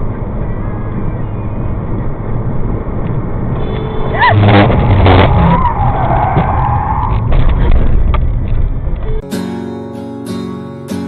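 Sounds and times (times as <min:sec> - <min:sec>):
car and road rumble: 0:00.0 - 0:09.2
tyre squeal: 0:03.6 - 0:07.2.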